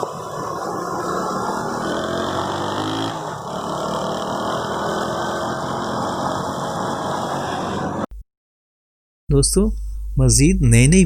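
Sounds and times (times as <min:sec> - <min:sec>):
vehicle engines in traffic: 0:00.0 - 0:08.1.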